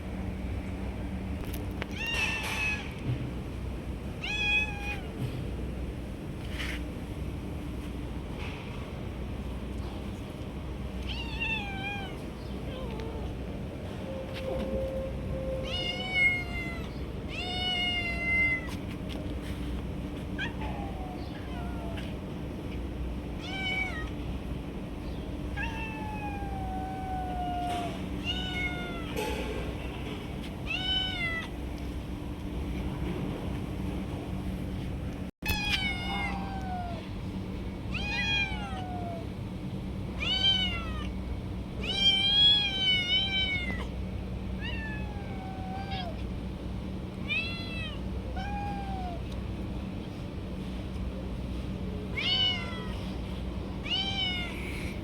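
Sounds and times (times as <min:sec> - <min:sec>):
steady low hum: 0:02.7 - 0:55.0
cat meowing: 0:04.2 - 0:05.2, 0:11.0 - 0:13.3, 0:15.6 - 0:18.7, 0:20.4 - 0:22.1, 0:23.4 - 0:24.1, 0:25.6 - 0:29.2, 0:30.6 - 0:31.6, 0:35.5 - 0:37.0, 0:37.9 - 0:39.2, 0:40.2 - 0:41.1, 0:41.8 - 0:43.9, 0:44.6 - 0:46.2, 0:47.2 - 0:49.3, 0:52.1 - 0:53.1, 0:53.8 - 0:54.9.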